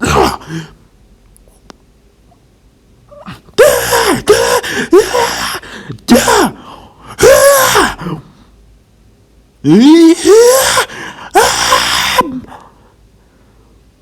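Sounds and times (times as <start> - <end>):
man shouting fight cries: 3.6 - 6.6, 7.2 - 8.1, 9.7 - 12.6.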